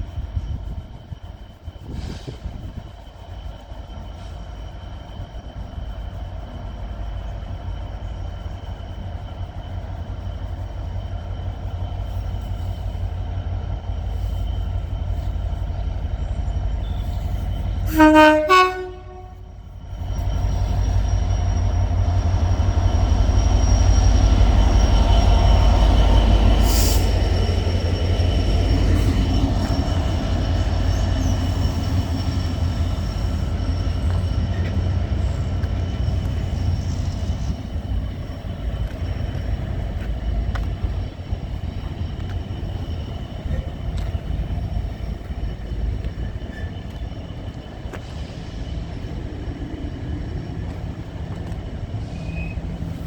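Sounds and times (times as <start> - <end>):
train rumbling past: 0.0 - 53.0.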